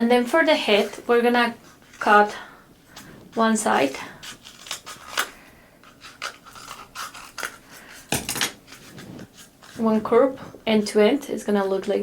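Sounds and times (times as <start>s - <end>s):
scissors cutting paper: 3.4s - 8.1s.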